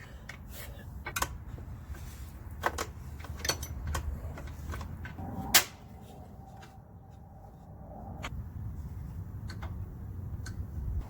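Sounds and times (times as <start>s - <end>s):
low background rumble: 0.0s - 11.0s
hand tools clicking on bolts: 2.5s - 5.7s.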